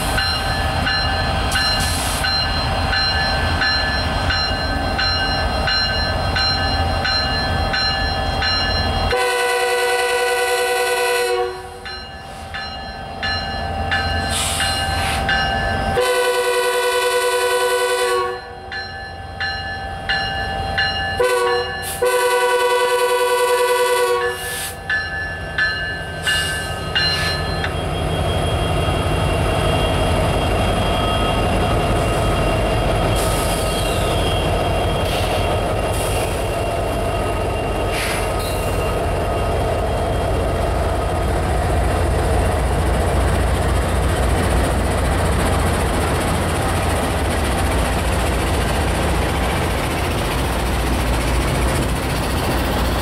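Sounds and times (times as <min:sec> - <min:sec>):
locomotive engines rumbling: 0:00.0 - 0:53.0
train horn: 0:09.1 - 0:11.8, 0:16.0 - 0:18.6, 0:21.2 - 0:24.6.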